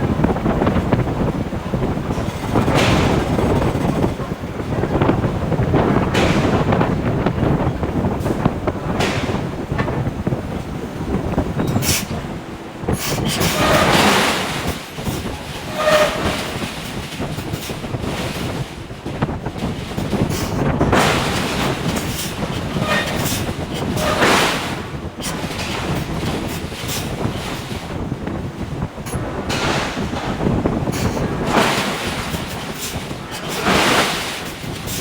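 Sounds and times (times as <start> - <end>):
forging hammer rumble: 0.0 - 35.0
metal squealing: 12.9 - 16.8, 22.0 - 24.4.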